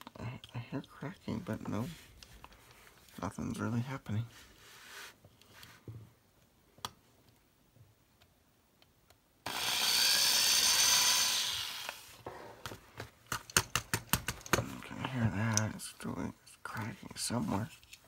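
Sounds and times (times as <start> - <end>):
electric drill boring into metal: 9.5 - 12.1.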